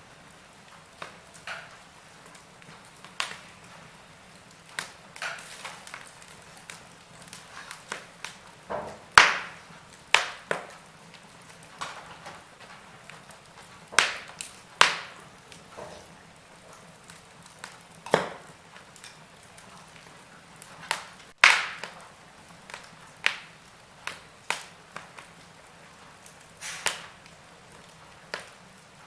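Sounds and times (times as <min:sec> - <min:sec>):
wood fire crackling and popping: 0:00.0 - 0:29.0.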